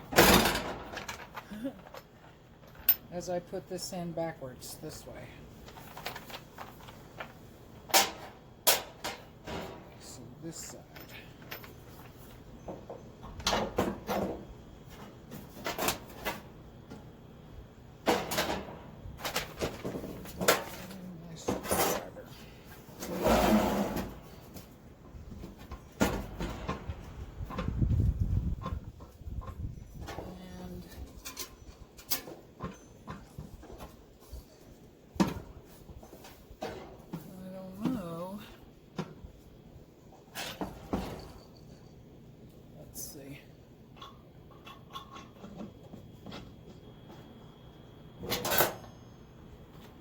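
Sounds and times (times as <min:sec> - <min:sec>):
clicks and knocks of grill parts: 0:00.0 - 0:03.1, 0:05.6 - 0:10.0, 0:10.9 - 0:17.1, 0:18.0 - 0:22.1, 0:31.0 - 0:34.0, 0:43.9 - 0:47.2
grill parts scraping and rubbing: 0:20.4 - 0:24.5.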